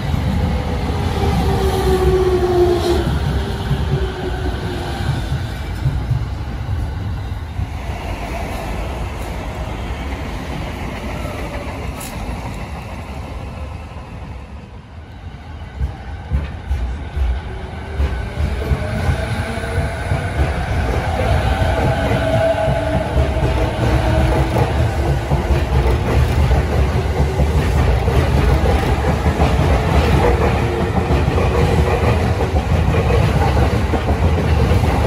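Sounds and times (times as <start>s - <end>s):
departing train rumble: 0.0s - 35.0s
train whine: 0.0s - 35.0s
train wheels knocking over rail joints: 15.8s - 35.0s.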